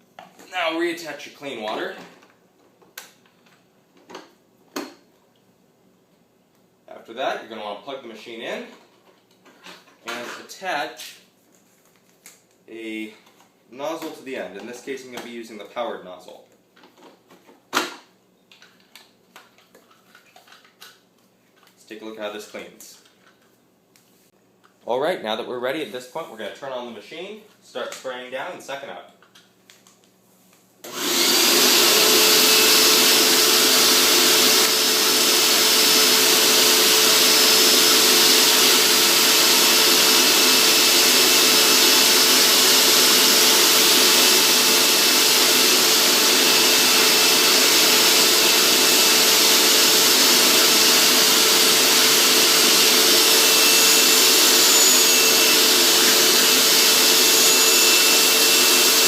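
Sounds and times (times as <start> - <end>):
carpet cleaner motor humming: 30.9 - 59.0.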